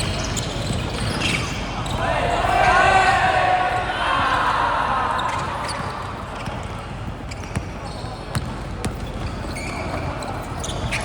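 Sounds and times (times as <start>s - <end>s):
players shouting: 1.8s - 6.3s
basketball bouncing on court: 5.2s - 11.0s.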